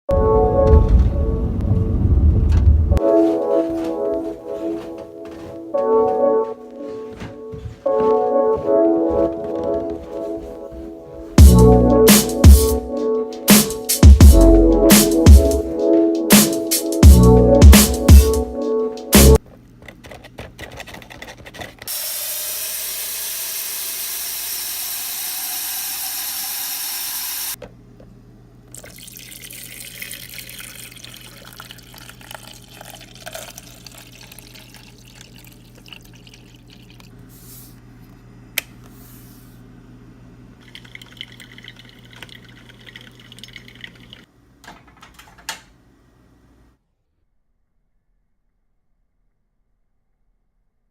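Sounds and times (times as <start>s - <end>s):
low hum: 0.1s - 3.2s
tap water filling container: 28.7s - 37.1s, 40.6s - 44.3s.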